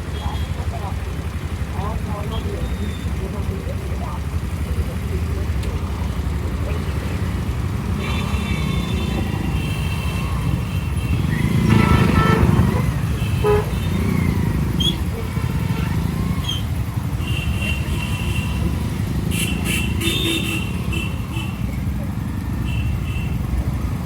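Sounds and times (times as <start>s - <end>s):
vehicle horns honking: 0.0s - 1.4s, 6.8s - 24.0s
road traffic: 0.0s - 24.0s.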